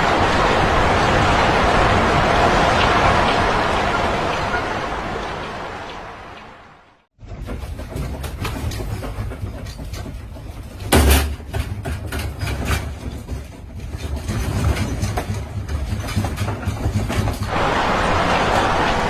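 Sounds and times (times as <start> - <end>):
rattling and clattering: 7.2 - 17.5.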